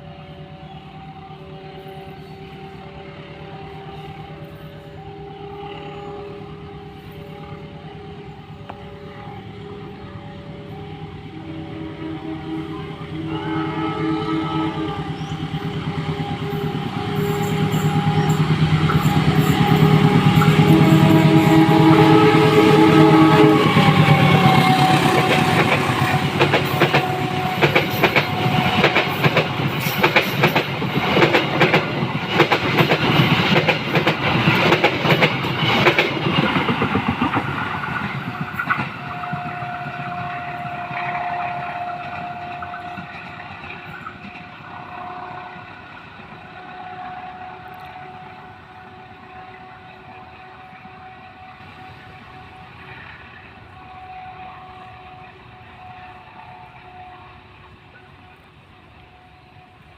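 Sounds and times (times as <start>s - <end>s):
train engine noise: 0.0s - 59.9s.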